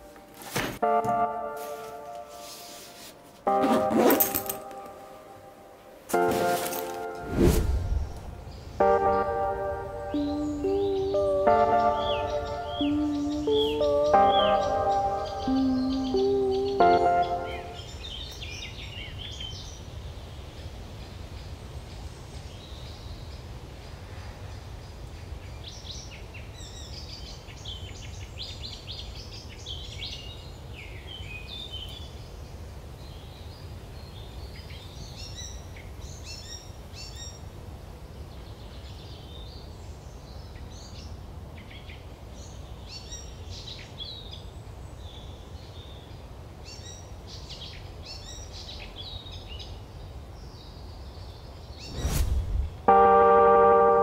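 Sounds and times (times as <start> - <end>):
steady low rumble: 7.2 - 11.0, 51.8 - 53.2
small birds chirping and trilling: 10.1 - 24.0.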